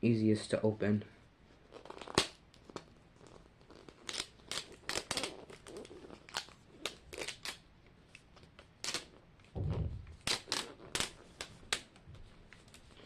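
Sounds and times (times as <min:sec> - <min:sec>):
dull thump: 0:09.6 - 0:10.2.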